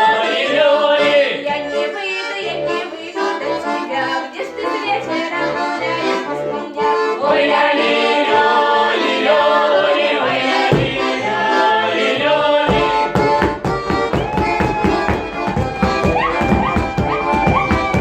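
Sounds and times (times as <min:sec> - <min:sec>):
accordion playing folk tune: 0:00.0 - 0:18.0
fast percussion beat: 0:13.4 - 0:18.0.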